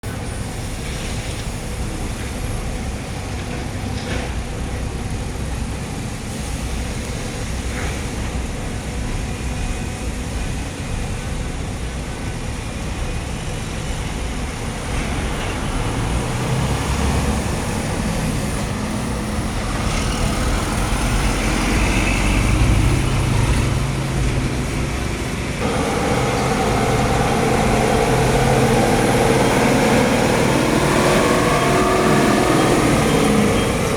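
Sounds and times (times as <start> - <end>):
truck diesel engine running: 6.8 - 33.9.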